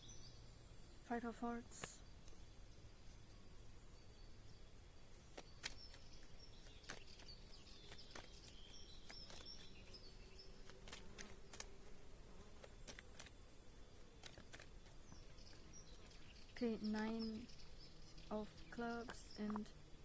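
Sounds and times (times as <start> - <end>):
faint bird chirping: 0.0 - 20.0
playing cards clicking: 5.3 - 9.8, 10.6 - 11.7, 12.6 - 13.4, 14.2 - 15.0.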